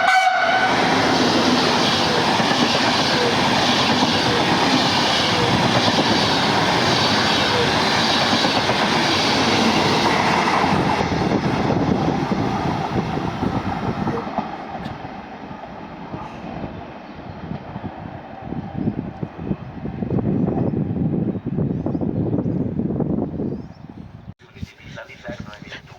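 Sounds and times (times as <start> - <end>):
wind buffeting microphone: 0.3 - 25.9
train wheels clattering on rails: 0.9 - 15.2.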